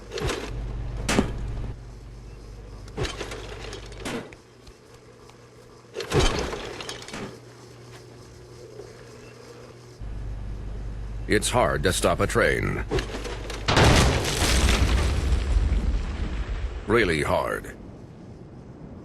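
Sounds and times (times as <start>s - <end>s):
low hum: 0.0s - 19.0s
sudden bangs and crashes: 13.7s - 16.9s.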